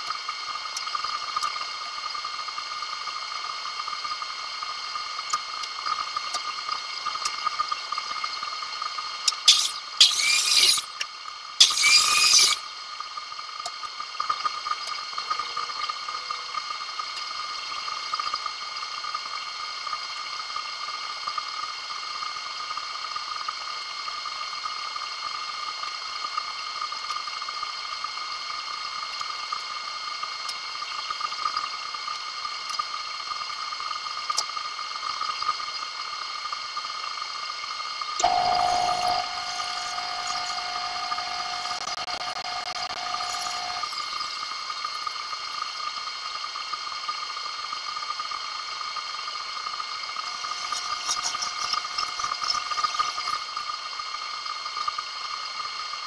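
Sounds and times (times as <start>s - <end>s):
machine whine with high tones: 0.0s - 56.0s
hiss: 9.3s - 11.0s, 11.6s - 12.6s
low steady tone: 38.2s - 44.4s.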